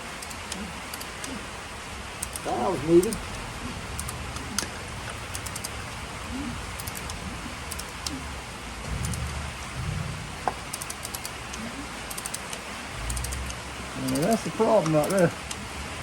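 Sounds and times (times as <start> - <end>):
steady background hiss: 0.0 - 16.0
dull low bumps: 1.8 - 12.0
quick light clicking of tools: 12.1 - 15.6.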